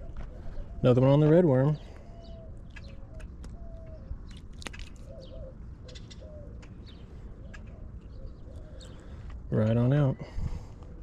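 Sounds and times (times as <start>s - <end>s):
short low bird calls: 1.6s - 4.4s.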